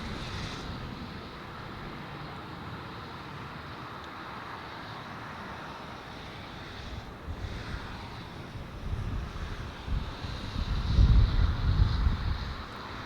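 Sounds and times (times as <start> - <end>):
distant jet airliner engine: 0.0 - 13.0
wind on microphone: 6.9 - 13.0.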